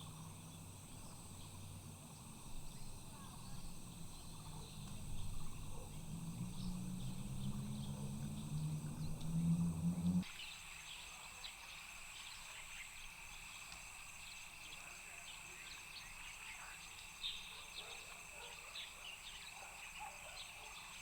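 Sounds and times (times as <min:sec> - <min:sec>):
low droning hum rising in pitch: 0:00.0 - 0:10.2
chorus of insects: 0:00.0 - 0:21.0.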